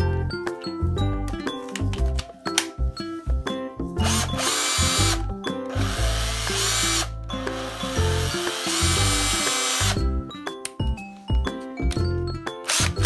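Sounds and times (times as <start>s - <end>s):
cordless drill motor running: 4.0s - 10.0s, 12.7s - 13.0s.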